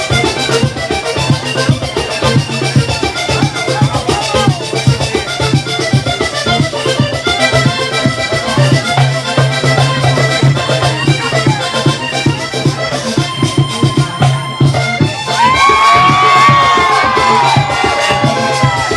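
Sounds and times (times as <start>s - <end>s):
button accordion melody: 0.0s - 18.9s
hand drum rhythm: 0.0s - 18.9s.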